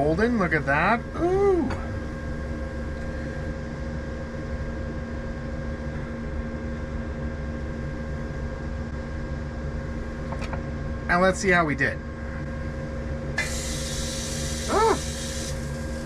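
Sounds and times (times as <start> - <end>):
small motor humming: 13.3 - 16.0.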